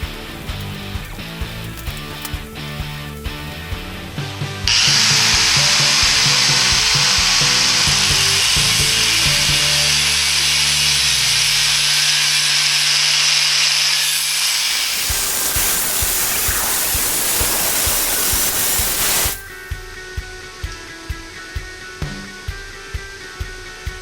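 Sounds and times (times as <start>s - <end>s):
power tool grinding: 0.0s - 3.6s, 4.7s - 19.4s
background music: 0.0s - 12.1s, 15.9s - 24.0s.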